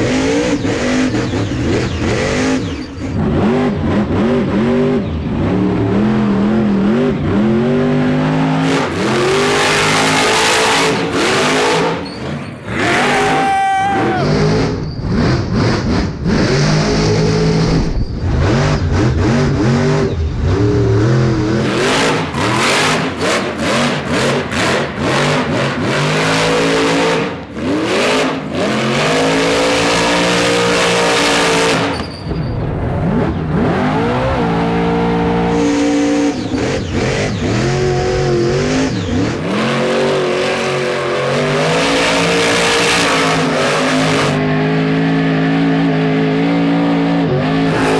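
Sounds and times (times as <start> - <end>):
truck engine revving hard: 0.0 - 47.9.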